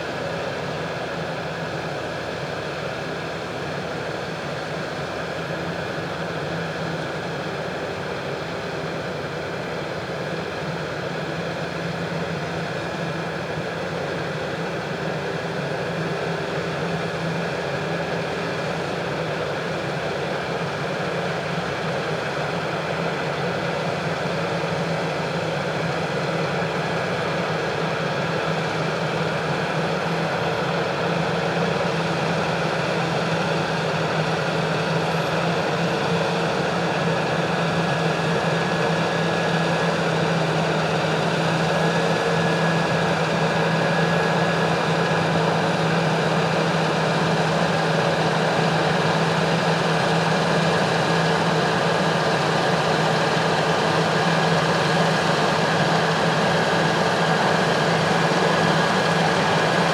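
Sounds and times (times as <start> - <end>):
harvest machinery running: 41.5 - 59.9.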